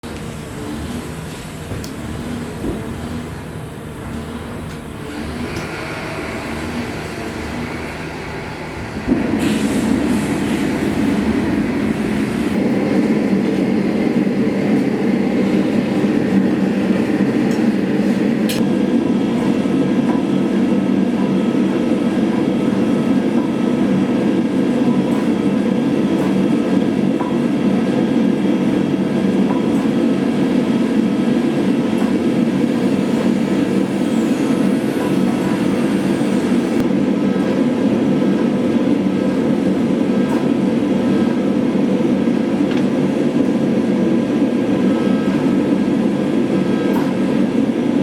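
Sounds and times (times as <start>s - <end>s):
forge roaring: 5.1s - 25.0s.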